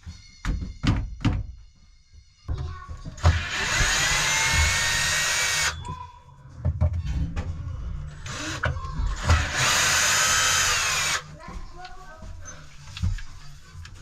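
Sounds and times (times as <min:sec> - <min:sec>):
power drill whining: 0:03.2 - 0:05.9, 0:08.3 - 0:11.3.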